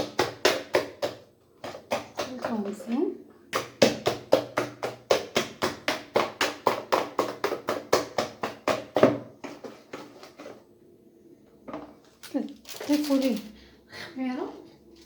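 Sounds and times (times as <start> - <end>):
utensil knocking against mixing bowl: 3.5 - 10.0.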